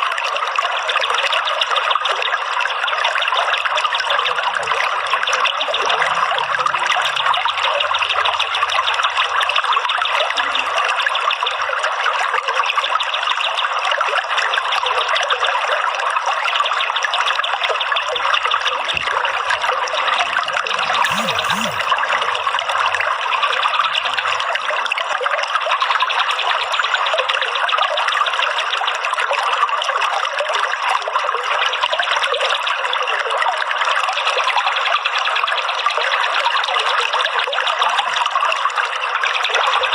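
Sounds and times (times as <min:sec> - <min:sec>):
water trickling and splashing: 0:21.9 - 0:39.9.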